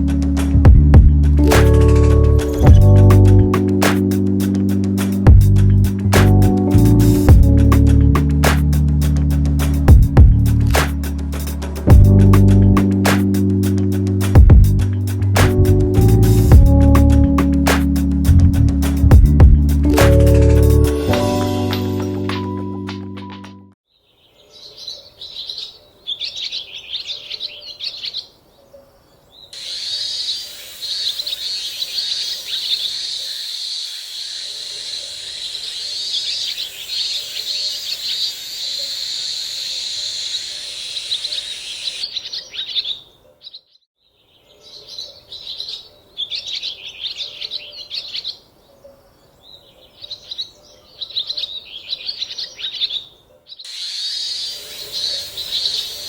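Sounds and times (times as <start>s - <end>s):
small birds chirping: 23.8s - 56.0s.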